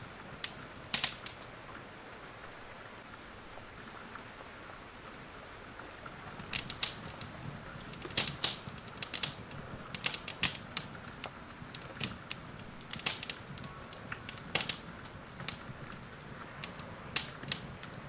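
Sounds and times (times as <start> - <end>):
rain hiss: 0.0 - 18.0
wood fire crackling and popping: 0.4 - 1.4, 6.2 - 18.0.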